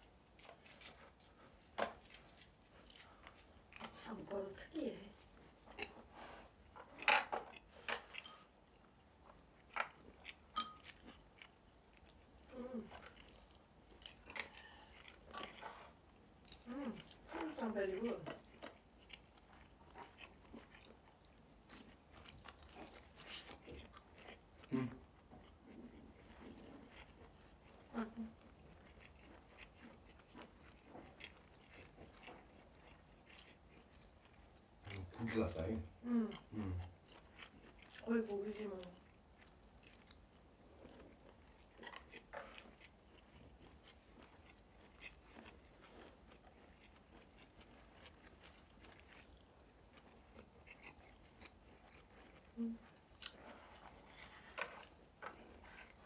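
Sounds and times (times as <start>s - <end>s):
people chewing food: 0.0s - 56.0s.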